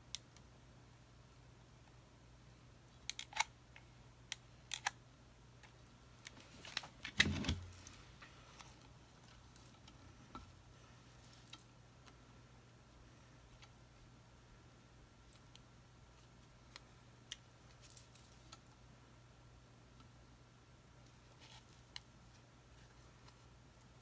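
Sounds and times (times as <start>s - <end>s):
small clicks and snips: 3.0s - 5.0s, 15.3s - 18.8s.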